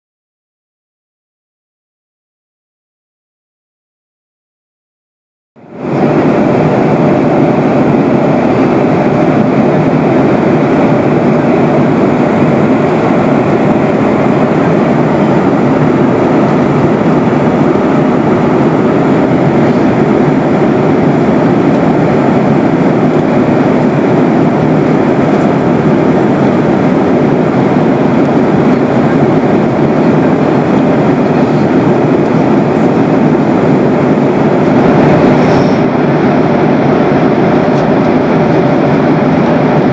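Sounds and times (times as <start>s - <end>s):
airliner cabin engine drone: 5.6s - 39.9s
air rushing past fuselage: 5.8s - 39.9s.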